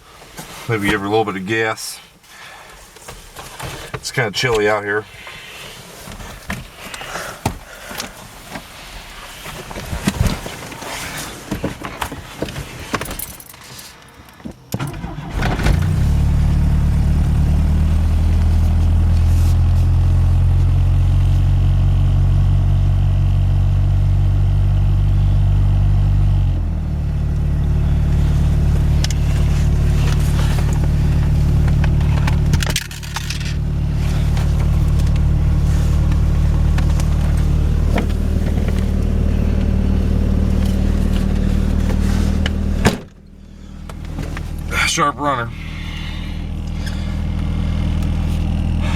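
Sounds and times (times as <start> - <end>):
truck engine idling: 14.9 - 21.2, 26.6 - 48.9
clicks and handling noises: 28.2 - 44.7.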